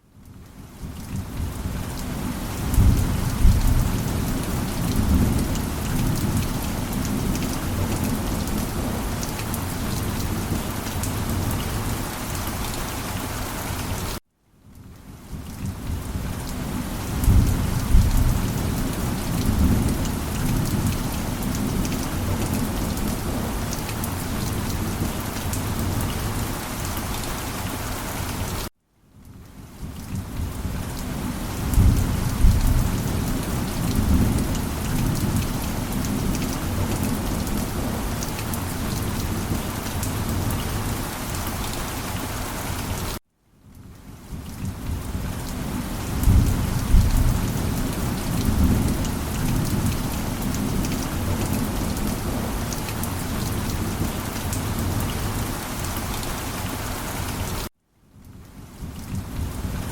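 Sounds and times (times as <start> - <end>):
heavy rain: 0.1 - 14.2, 14.8 - 59.9
rolling rumbles of thunder: 2.6 - 9.6, 15.6 - 26.4, 30.1 - 38.3, 44.6 - 55.1.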